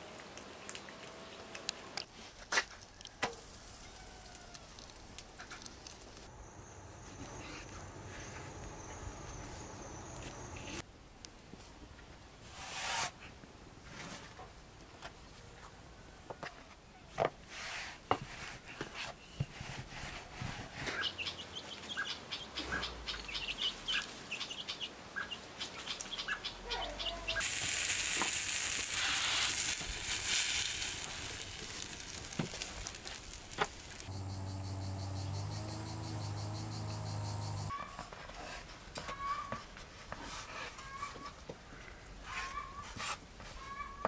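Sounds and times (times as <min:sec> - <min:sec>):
birds chirping: 0:20.9 - 0:27.5, 0:32.8 - 0:37.7
loud high hiss: 0:27.4 - 0:36.0
low hum: 0:34.1 - 0:37.7.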